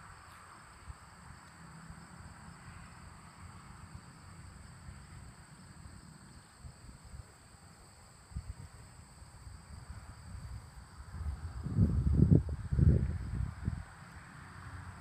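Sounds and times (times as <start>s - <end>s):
wind buffeting microphone: 9.7s - 14.0s.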